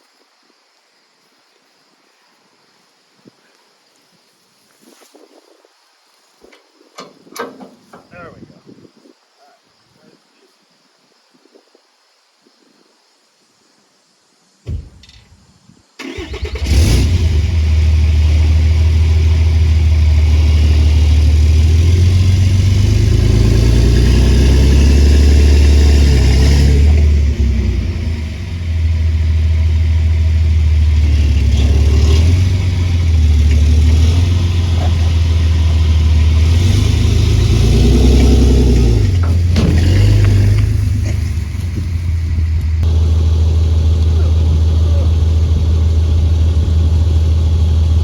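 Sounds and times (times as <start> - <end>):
vehicle engine revving high: 16.1 - 48.0.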